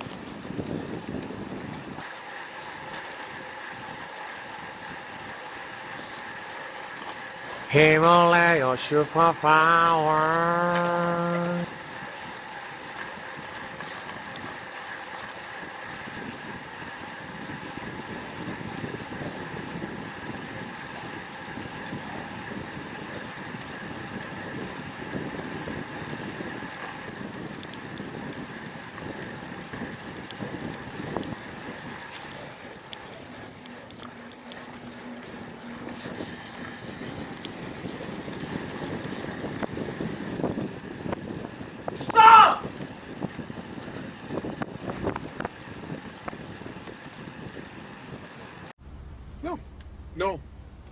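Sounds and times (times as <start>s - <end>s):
tyre and road noise: 0.0s - 8.0s, 9.9s - 50.9s
wind rushing over microphone: 35.3s - 48.7s.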